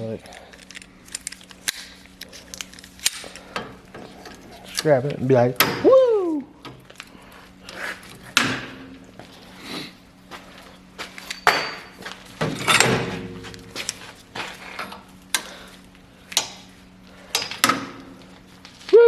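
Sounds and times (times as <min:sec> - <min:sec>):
hand tools clanking on steel: 0:11.0 - 0:14.1
loud ringing metal clangs: 0:11.2 - 0:13.8.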